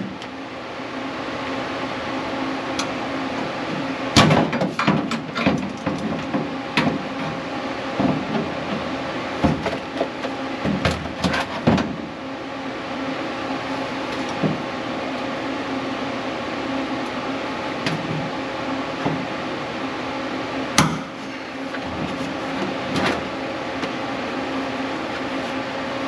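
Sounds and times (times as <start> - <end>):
steady mechanical hum: 0.0 - 26.0
sharp knocks and clanks: 4.2 - 7.4, 8.0 - 12.0.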